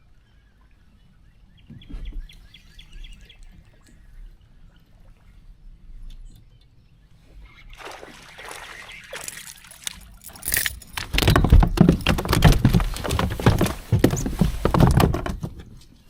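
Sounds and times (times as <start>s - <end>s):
water splashing at kayak: 7.7s - 15.6s
knocks and handling noise: 9.3s - 16.0s.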